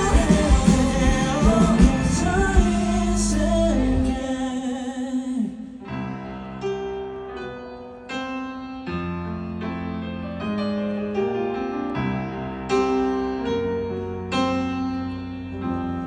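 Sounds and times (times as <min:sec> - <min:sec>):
live piano playing: 0:00.0 - 0:04.7, 0:05.8 - 0:16.0
person singing: 0:00.0 - 0:07.7.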